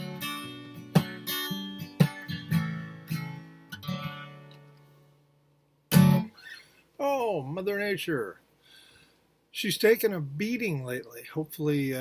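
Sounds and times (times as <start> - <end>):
acoustic guitar strumming chords: 0.0 - 5.0, 5.9 - 6.6.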